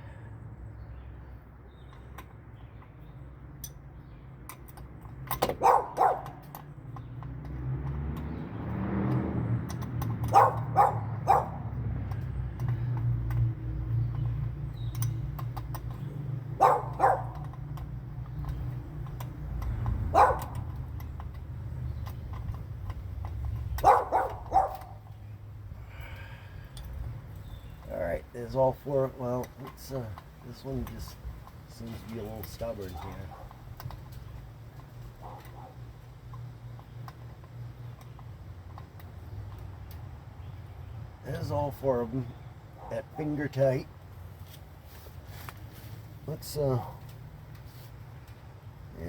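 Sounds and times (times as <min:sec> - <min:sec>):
dog barking: 0:05.6 - 0:06.4, 0:10.3 - 0:11.7, 0:16.6 - 0:17.4, 0:20.1 - 0:20.6, 0:23.8 - 0:25.0, 0:35.2 - 0:35.8.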